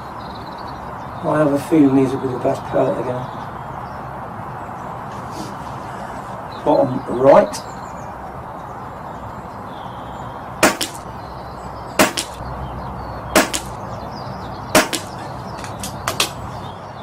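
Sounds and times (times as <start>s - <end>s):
air rifle shots cracking: 10.6s - 11.1s, 12.0s - 12.4s, 13.4s - 13.8s, 14.7s - 16.5s.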